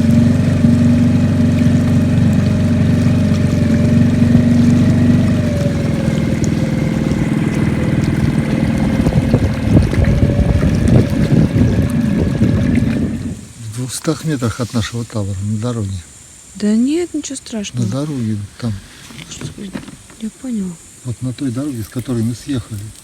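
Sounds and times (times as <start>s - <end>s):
small boat motor running: 0.0s - 13.6s.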